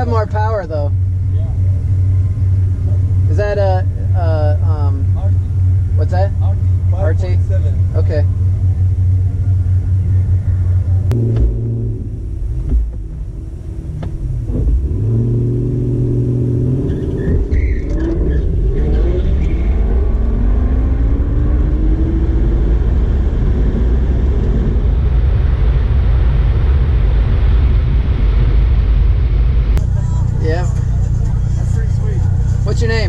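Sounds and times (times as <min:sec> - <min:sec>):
car engine rumbling and revving: 0:00.0 - 0:33.0
car accelerating away: 0:01.0 - 0:26.7.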